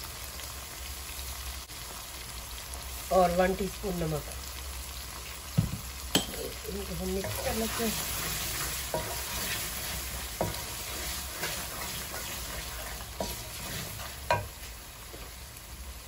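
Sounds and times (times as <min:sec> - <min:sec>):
spiced sauce sizzling in oil: 0:00.0 - 0:16.0
wooden spoon stirring: 0:07.2 - 0:15.3
spoon knocking against pan: 0:14.2 - 0:14.6.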